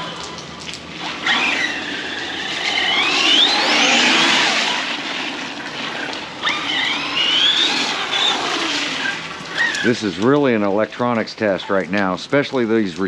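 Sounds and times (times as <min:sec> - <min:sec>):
electric motor whining: 0:00.0 - 0:10.3.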